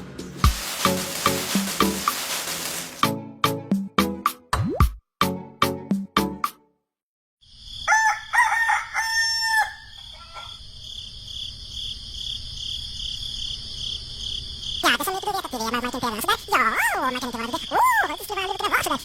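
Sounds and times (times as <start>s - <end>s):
insects droning: 7.4s - 19.0s
rooster crowing: 7.8s - 10.7s.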